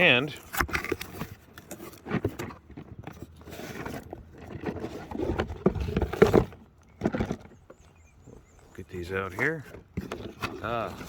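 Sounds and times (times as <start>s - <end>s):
package rustling and scraping: 0.0s - 7.9s, 9.3s - 11.0s.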